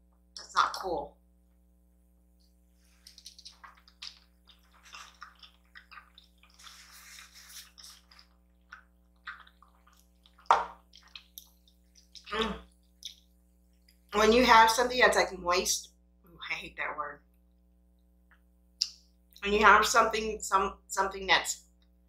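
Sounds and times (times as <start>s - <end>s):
wet chewing: 2.9s - 14.2s
slurping noodles: 3.1s - 8.5s.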